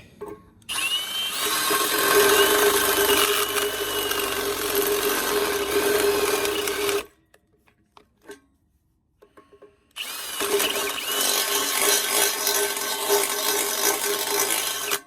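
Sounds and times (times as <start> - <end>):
drill bit squealing: 0.7 - 7.1, 10.0 - 15.0
electric drill boring into metal: 0.7 - 7.1, 10.0 - 15.0.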